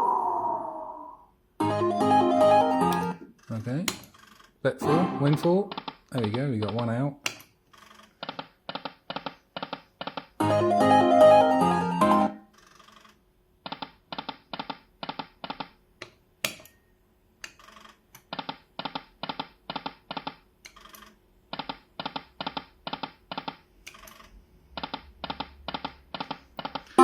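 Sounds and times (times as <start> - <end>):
slot machine reel clicks: 2.4 - 3.2, 4.8 - 6.9.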